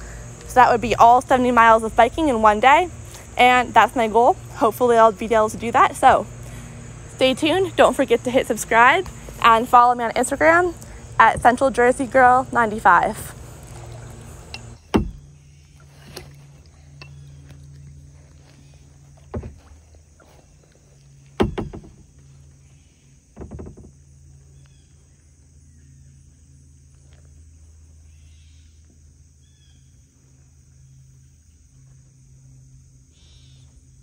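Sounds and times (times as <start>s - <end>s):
high-pitched insect drone: 0.0s - 34.0s
low hum: 0.0s - 34.0s
short knocks: 14.6s - 15.3s, 19.2s - 19.8s, 21.3s - 22.1s, 23.4s - 24.0s.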